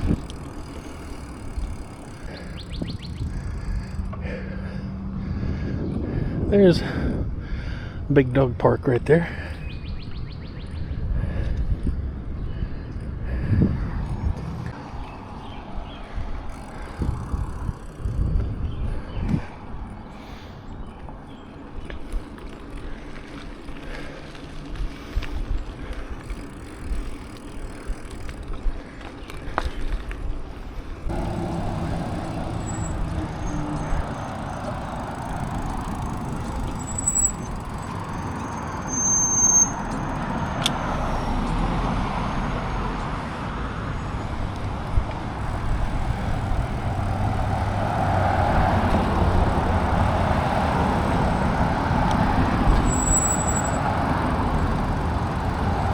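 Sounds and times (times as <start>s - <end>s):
wind rushing over microphone: 0.0s - 0.7s, 1.4s - 8.1s, 9.6s - 21.1s, 39.7s - 55.9s
road noise: 0.0s - 55.9s
short high squeaks: 32.5s - 34.3s, 35.6s - 40.3s, 52.7s - 53.8s.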